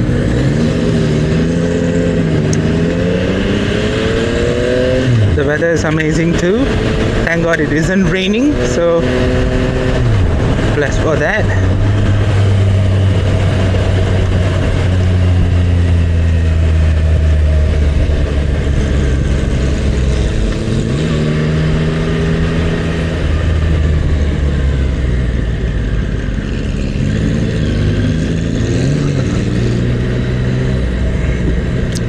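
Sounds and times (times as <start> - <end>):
motorcycle engine humming: 0.0 - 32.0
wind and road noise: 0.0 - 32.0.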